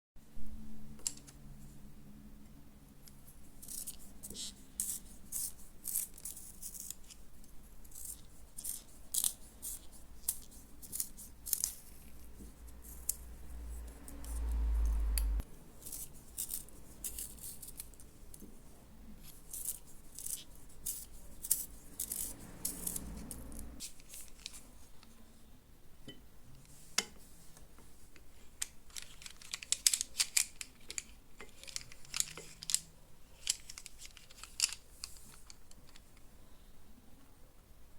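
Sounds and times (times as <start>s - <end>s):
low handling rumble: 13.5s - 15.4s
pencil sharpener scraping: 19.4s - 24.6s.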